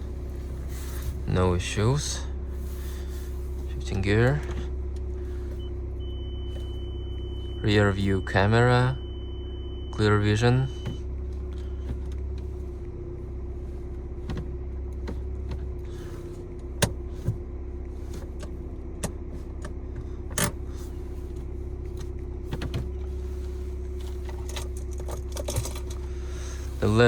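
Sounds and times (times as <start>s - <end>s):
diesel engine idling: 0.0s - 27.0s
interior control clicks: 3.7s - 5.7s, 10.3s - 13.0s, 14.2s - 23.2s, 23.8s - 27.0s.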